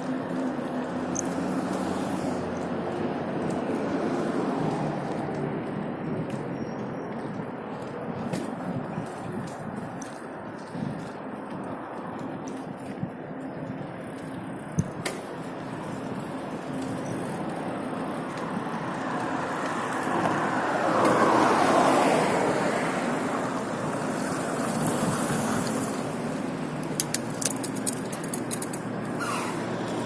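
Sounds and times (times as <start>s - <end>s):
road traffic roar: 0.0s - 30.0s
vehicle passing close by: 18.6s - 26.2s.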